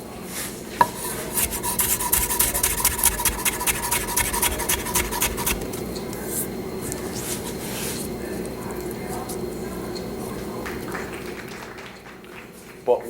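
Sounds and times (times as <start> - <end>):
knife slicing tomato on board: 0.8 - 5.8.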